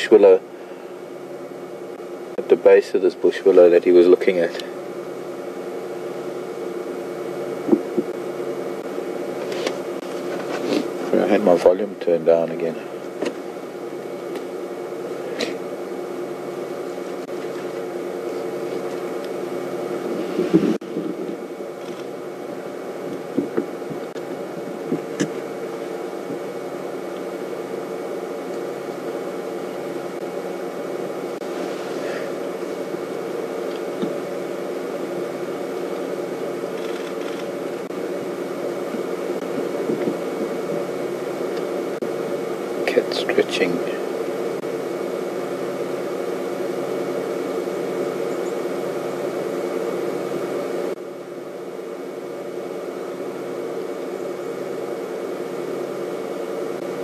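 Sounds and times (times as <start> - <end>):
mechanical hum: 0.0 - 57.0
hiss: 31.4 - 32.9.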